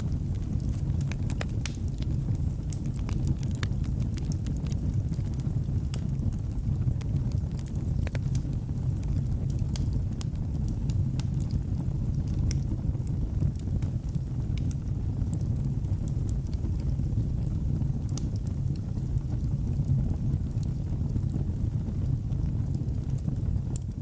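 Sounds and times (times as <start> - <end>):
fire crackling and popping: 0.0 - 24.0
fire rumbling: 0.0 - 24.0.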